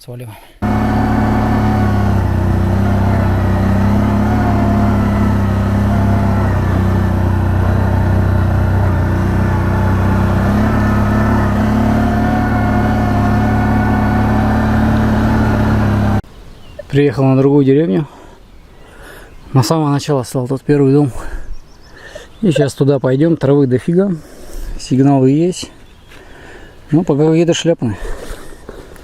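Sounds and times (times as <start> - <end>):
quad bike engine running: 0.6 - 16.2.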